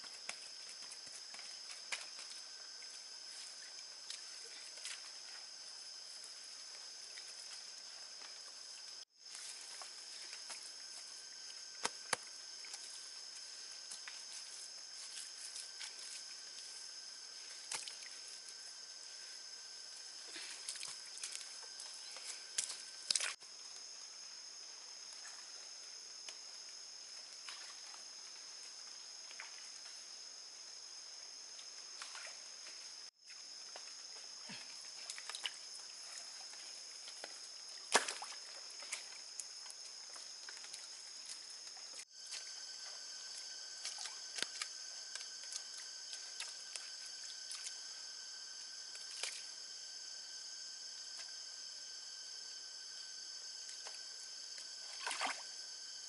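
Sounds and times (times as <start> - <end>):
insects droning: 0.0 - 56.0
low insect tone: 0.0 - 56.0.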